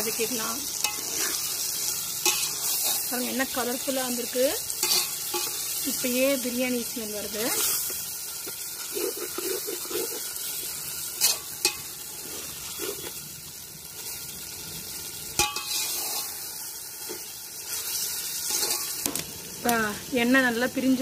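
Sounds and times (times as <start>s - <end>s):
metal spatula scraping pot: 0.0s - 5.8s, 7.3s - 13.2s, 15.4s - 19.0s
masala sizzling in oil: 0.0s - 21.0s.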